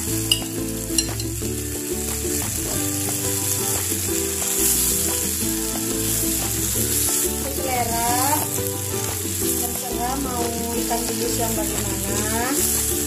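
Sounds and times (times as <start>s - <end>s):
background music: 0.0s - 13.0s
food sizzling in a wok: 0.0s - 13.0s
spatula stirring in a wok: 2.9s - 10.2s.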